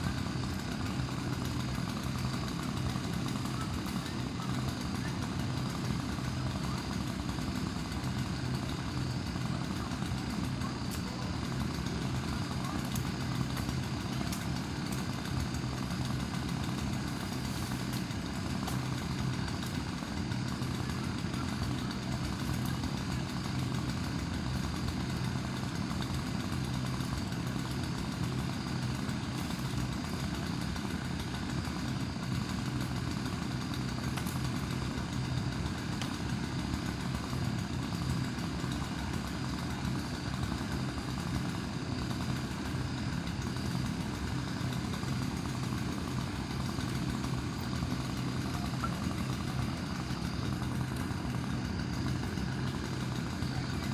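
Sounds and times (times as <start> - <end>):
engine droning steadily: 0.0 - 53.9.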